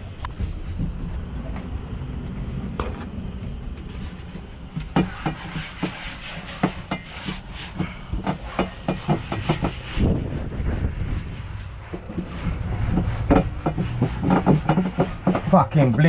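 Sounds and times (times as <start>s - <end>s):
low steady rumble: 0.0s - 16.0s
objects knocking and clattering: 12.0s - 15.5s.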